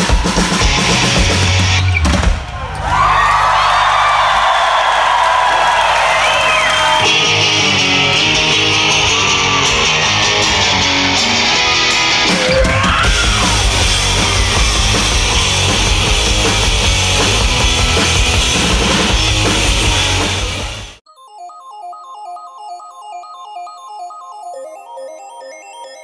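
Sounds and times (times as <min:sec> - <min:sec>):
bass and drums: 0:00.0 - 0:03.1, 0:07.0 - 0:21.0
electric guitar: 0:07.0 - 0:21.0.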